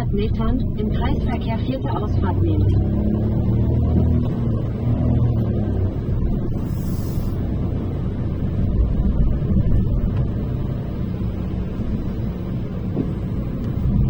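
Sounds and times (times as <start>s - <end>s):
car road and engine rumble: 0.0s - 14.0s
brief hiss: 6.5s - 7.5s.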